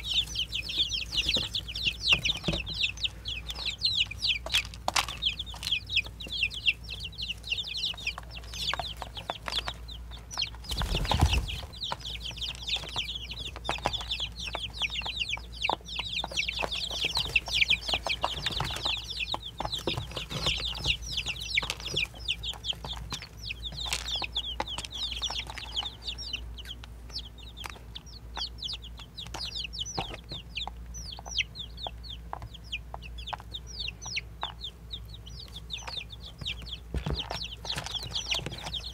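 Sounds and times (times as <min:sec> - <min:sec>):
baby chicks peeping: 0:00.0 - 0:38.9.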